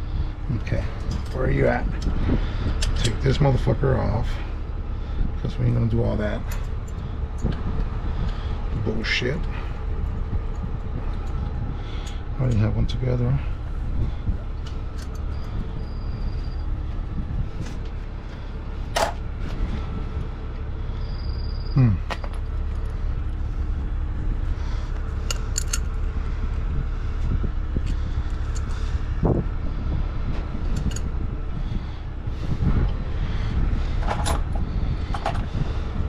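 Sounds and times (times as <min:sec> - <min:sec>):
truck engine idling: 0:00.0 - 0:36.0
short falling squeal: 0:21.0 - 0:22.3.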